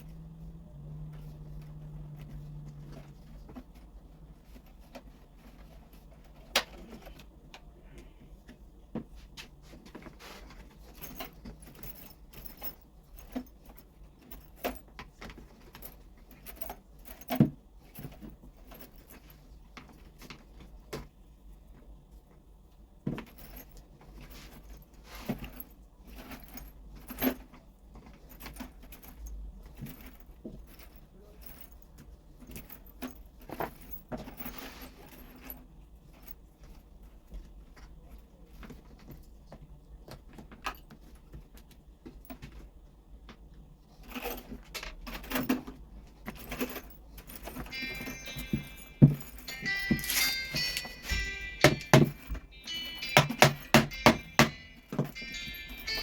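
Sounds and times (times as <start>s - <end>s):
metal parts and tools clinking: 0.0s - 7.7s, 10.0s - 20.3s, 23.2s - 36.9s, 44.0s - 56.0s.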